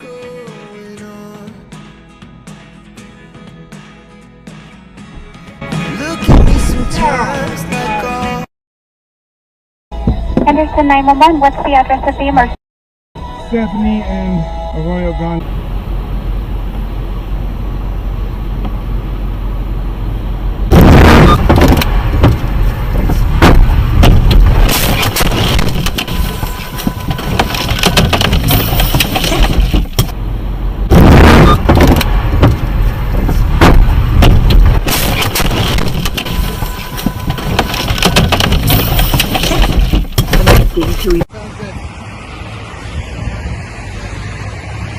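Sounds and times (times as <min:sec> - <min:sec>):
loud vehicle collision crashes: 0:06.3 - 0:07.0, 0:20.7 - 0:30.2, 0:30.8 - 0:41.0
car road noise: 0:13.2 - 0:44.9
rattling and knocking: 0:27.0 - 0:30.1, 0:37.2 - 0:41.1.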